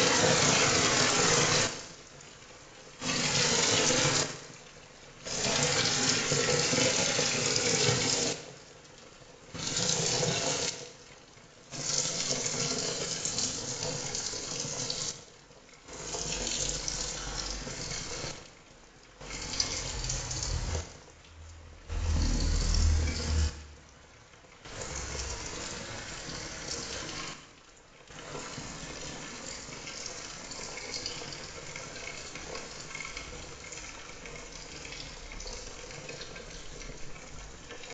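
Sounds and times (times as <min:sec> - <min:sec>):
heavy rain falling: 0:19.3 - 0:26.7
loud low rumble: 0:19.7 - 0:24.2.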